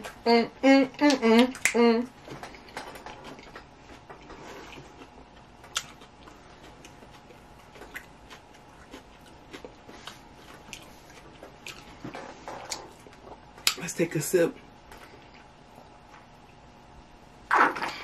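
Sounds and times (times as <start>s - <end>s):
chewing: 1.4s - 13.8s.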